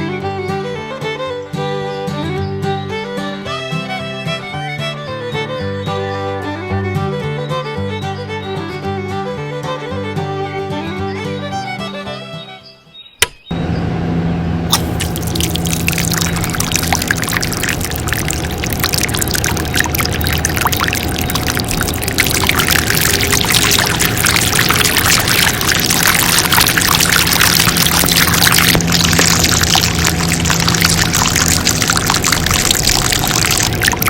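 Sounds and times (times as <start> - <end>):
click: 13.2 - 13.4
diesel engine humming: 13.6 - 34.0
water gushing and splashing: 14.7 - 34.0.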